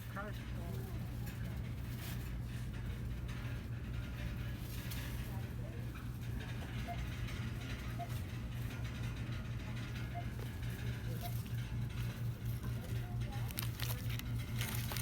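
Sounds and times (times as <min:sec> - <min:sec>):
low shop hum: 0:10.0 - 0:15.0
packaging rustling: 0:13.4 - 0:15.0.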